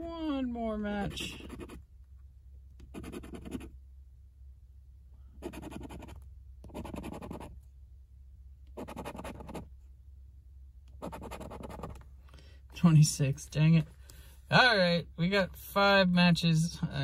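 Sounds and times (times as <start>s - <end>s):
steady low hum: 0.0s - 17.0s
lottery ticket being scratched: 2.9s - 3.7s, 5.4s - 7.5s, 8.8s - 9.7s, 11.0s - 12.0s.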